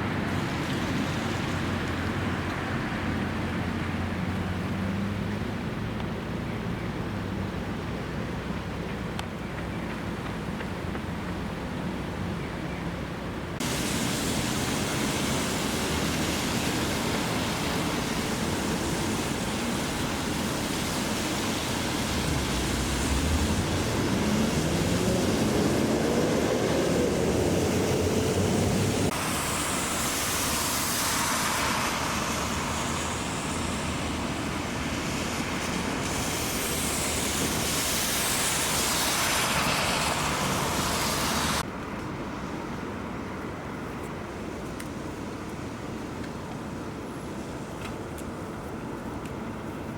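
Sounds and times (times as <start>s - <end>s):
tyres hissing on wet road: 0.0s - 9.2s, 13.2s - 49.9s
engine climbing in pitch: 22.0s - 29.8s.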